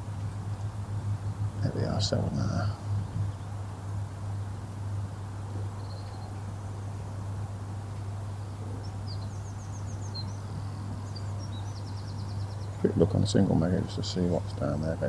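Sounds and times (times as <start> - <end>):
steady low hum: 0.0 - 15.0
small bird chirping: 5.5 - 6.5, 8.7 - 13.2.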